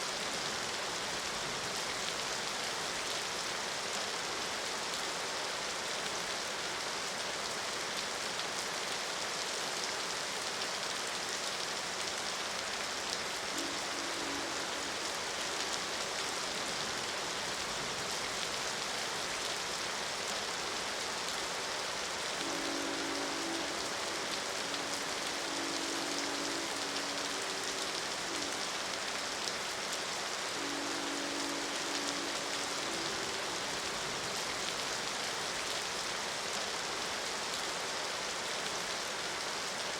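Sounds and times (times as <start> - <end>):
steady rain: 0.0 - 39.9
distant train horn: 13.4 - 16.6, 22.4 - 35.2.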